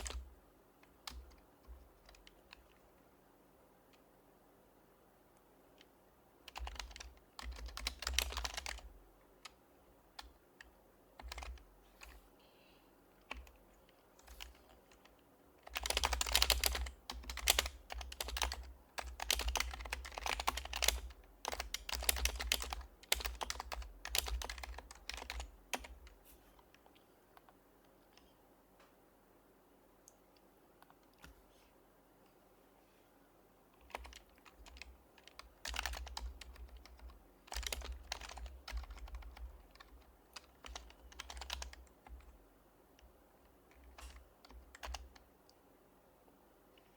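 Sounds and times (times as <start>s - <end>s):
typing on a keyboard: 0.0s - 2.8s, 5.8s - 9.6s, 10.2s - 12.2s, 13.2s - 26.2s, 33.8s - 42.4s, 43.0s - 45.3s.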